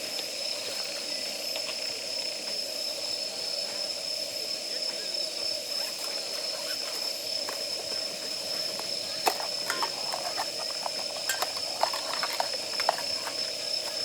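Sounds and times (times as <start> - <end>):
steady high hiss: 0.0 - 14.0
firewood crackling and popping: 8.7 - 14.0.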